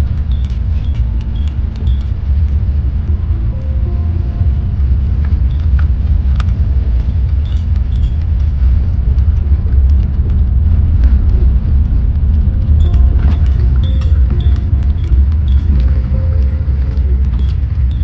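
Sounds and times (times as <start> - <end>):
vehicle low rumble: 0.0 - 18.0.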